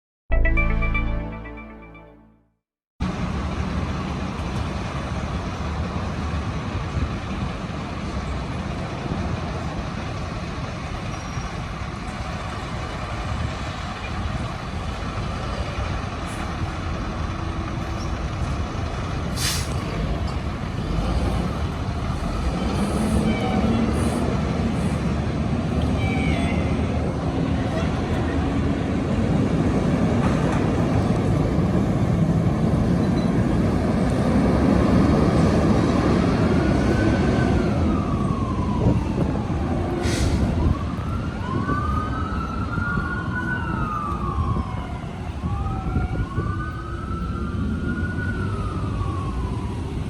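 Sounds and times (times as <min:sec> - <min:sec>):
rising tone: 0:00.3 - 0:02.6
air brakes hissing: 0:19.3 - 0:19.8, 0:22.2 - 0:25.0, 0:40.0 - 0:40.6.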